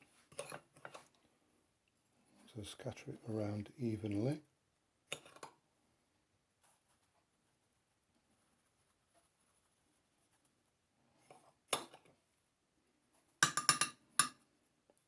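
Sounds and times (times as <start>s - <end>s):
spoon clinking against dish: 13.4s - 14.4s.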